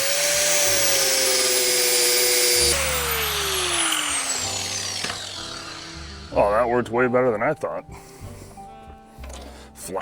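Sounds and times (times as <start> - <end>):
motor winding down: 0.0 - 7.0
angle grinder on wood: 0.0 - 7.3.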